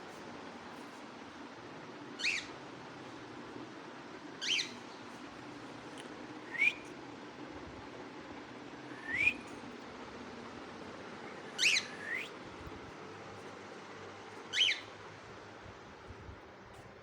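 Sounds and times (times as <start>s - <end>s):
parrot whistled chirps: 2.2s - 2.5s, 4.4s - 4.8s, 11.6s - 12.4s, 14.5s - 14.9s.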